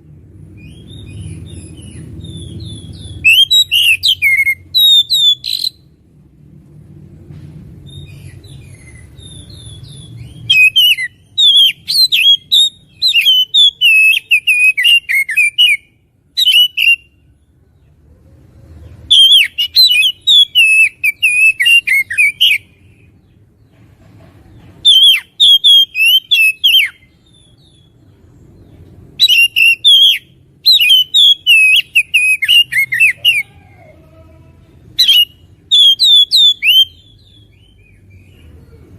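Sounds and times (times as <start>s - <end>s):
bird singing whistles and chirps: 0.6s - 5.8s, 7.8s - 17.2s, 19.1s - 22.7s, 24.8s - 28.0s, 29.2s - 33.5s, 35.0s - 38.4s.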